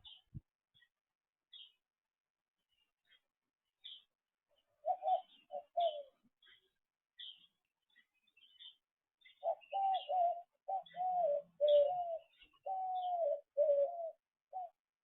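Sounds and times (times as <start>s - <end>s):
small birds chirping: 0.0s - 2.0s, 2.6s - 15.0s
bird calling low clear notes: 4.8s - 6.2s, 9.3s - 14.9s.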